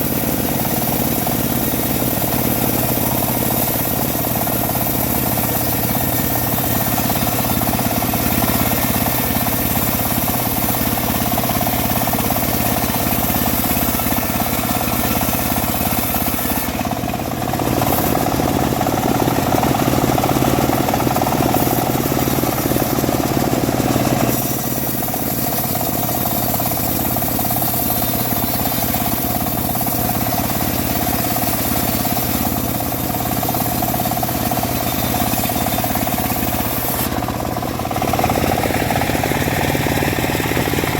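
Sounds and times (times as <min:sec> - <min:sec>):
sawmill engine running: 0:00.0 - 0:40.9.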